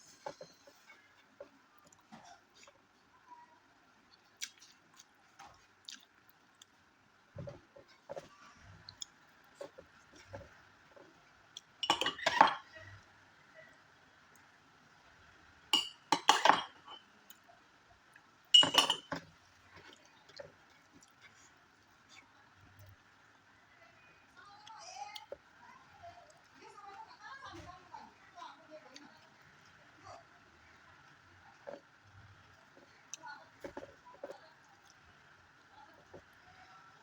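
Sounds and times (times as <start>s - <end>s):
eating sounds: 4.0s - 6.8s
tableware clinking against dishes: 11.8s - 12.7s, 15.8s - 17.1s, 18.6s - 19.2s.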